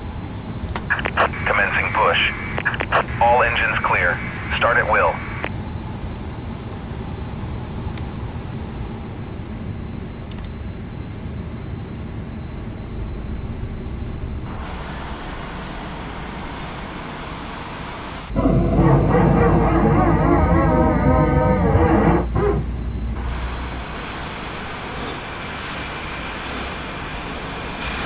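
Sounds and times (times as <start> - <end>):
faint high whine: 0.9 - 5.6
airliner rumble and hiss: 0.9 - 7.6, 14.5 - 18.4, 23.2 - 28.0.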